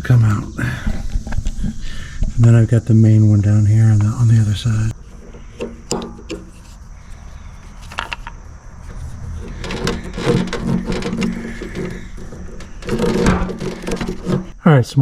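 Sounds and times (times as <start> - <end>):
hand tools clicking and knocking: 5.1 - 6.8, 7.8 - 14.5.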